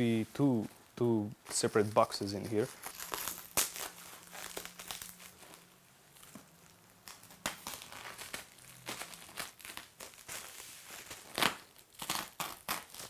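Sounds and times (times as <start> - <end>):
packaging crinkling: 1.8 - 13.0
packaging ripping: 2.6 - 13.0.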